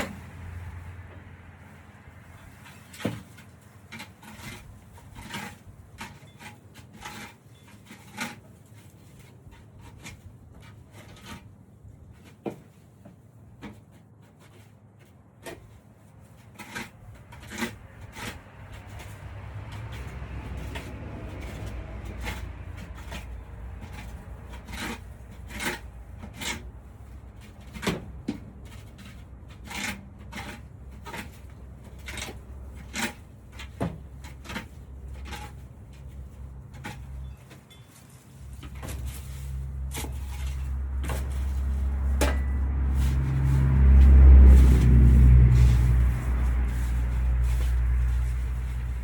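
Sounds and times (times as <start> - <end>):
low vehicle rumble: 0.0 - 6.0, 16.9 - 49.0.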